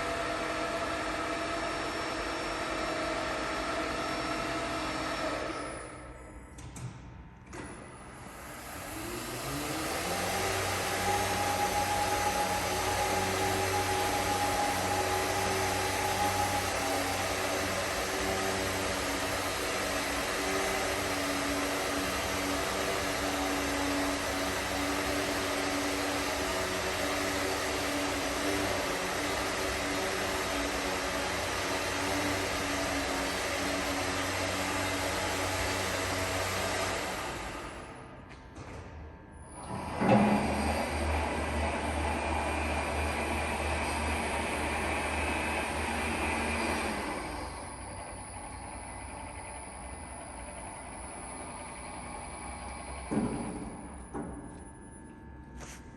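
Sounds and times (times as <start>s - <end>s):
stone-cutting saw running: 8.3s - 37.8s.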